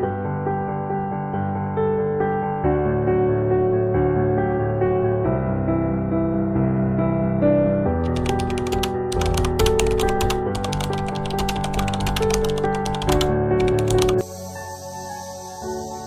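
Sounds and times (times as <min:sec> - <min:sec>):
soft background music: 0:00.0 - 0:16.0
typewriter key clicks: 0:08.0 - 0:14.2.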